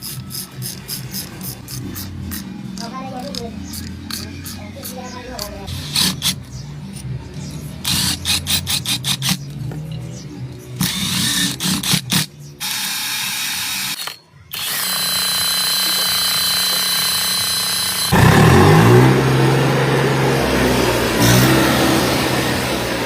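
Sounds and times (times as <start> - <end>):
high mechanical whine: 5.7 - 23.0
tractor diesel engine running: 14.6 - 23.0.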